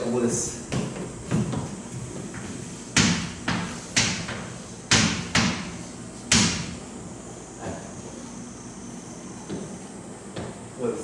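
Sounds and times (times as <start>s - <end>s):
marker tapping a board: 2.4s - 5.7s.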